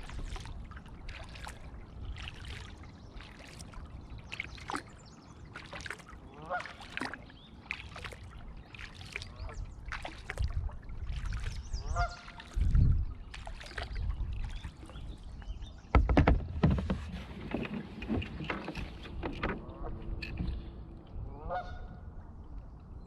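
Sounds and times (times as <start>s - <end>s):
paddle strokes dripping water: 0.0s - 23.0s
waterbird honking: 6.3s - 7.1s, 11.8s - 12.5s, 20.8s - 22.2s
paddle thumps on hull: 15.8s - 20.6s.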